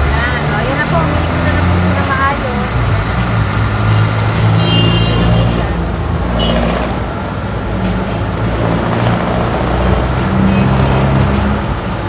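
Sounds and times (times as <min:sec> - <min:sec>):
car engine idling: 0:06.9 - 0:12.0.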